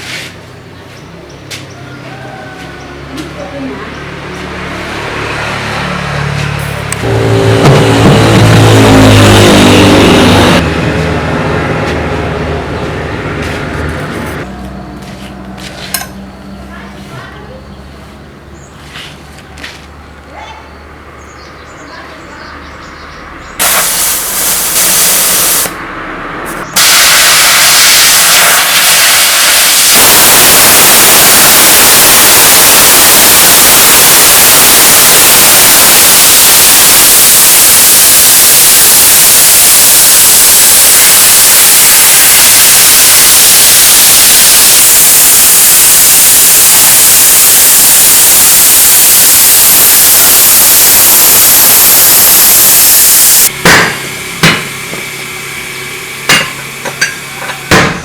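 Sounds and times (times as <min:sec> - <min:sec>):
loud hiss of rushing air: 0:23.6 - 0:25.8, 0:26.8 - 0:53.4.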